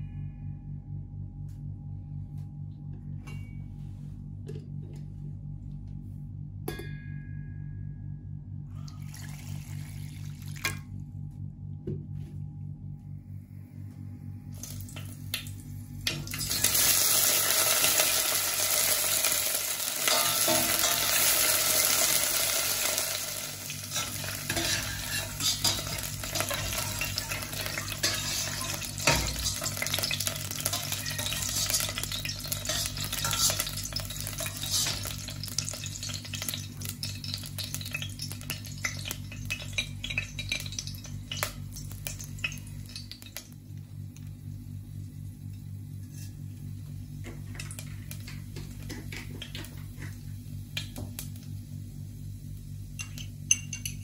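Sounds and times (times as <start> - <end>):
okra sizzling in hot oil: 16.2 - 43.5.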